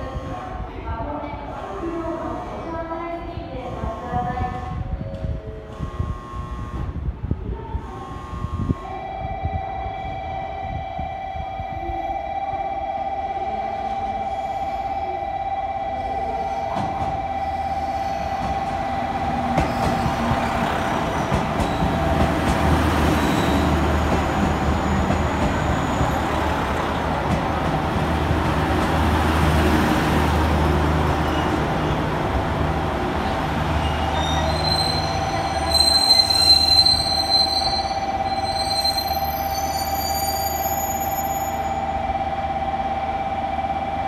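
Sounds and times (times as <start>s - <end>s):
diesel railcar engine rumble: 0.0s - 44.0s
high brake squeal: 33.8s - 41.8s.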